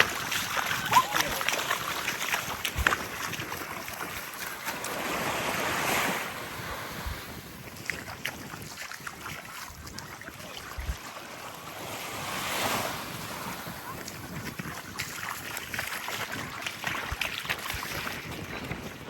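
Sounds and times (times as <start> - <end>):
waves lapping on beach: 0.0 - 19.0
wind on microphone: 0.0 - 19.0.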